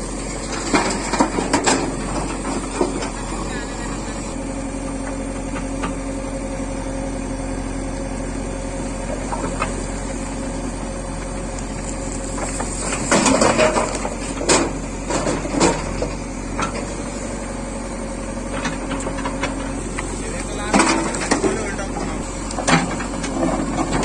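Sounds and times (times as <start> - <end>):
loud clattering and scraping: 0.0 - 4.4, 11.6 - 17.5, 18.4 - 24.0
diesel engine running: 0.0 - 24.0.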